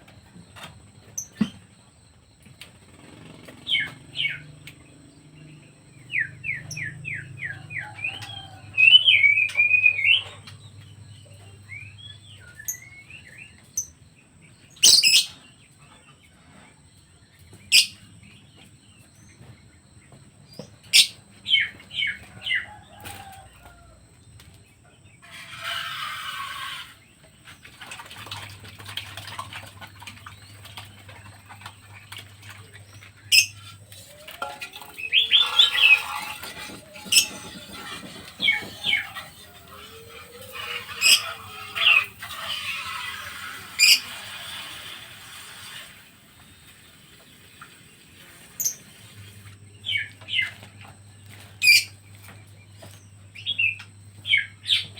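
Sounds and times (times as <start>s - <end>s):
birds chirping: 0.0s - 16.3s, 17.3s - 23.4s, 24.6s - 44.7s, 47.1s - 54.9s
wings flapping and rustling: 27.5s - 45.8s.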